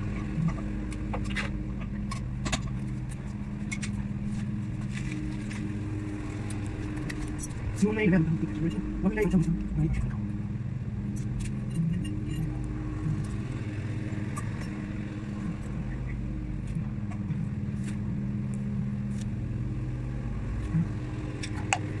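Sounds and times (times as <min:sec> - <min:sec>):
faint ticks: 0:00.0 - 0:07.8
car engine running: 0:00.0 - 0:22.0.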